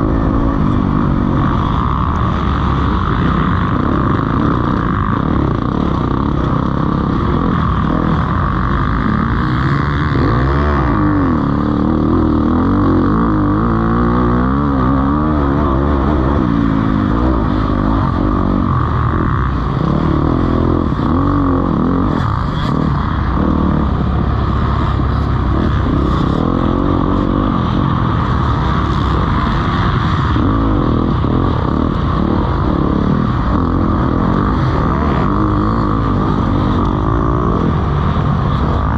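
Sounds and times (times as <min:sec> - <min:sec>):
motocross engines revving: 0:00.0 - 0:38.9.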